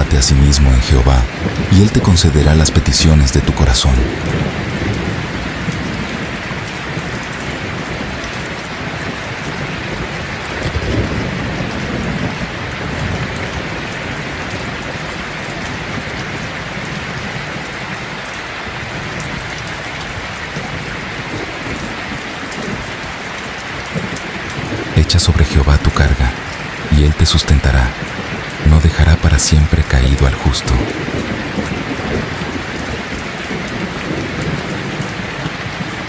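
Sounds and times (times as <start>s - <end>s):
thunder rumbling: 0.0s - 27.2s, 27.8s - 36.0s
steady rain hissing: 0.0s - 36.0s.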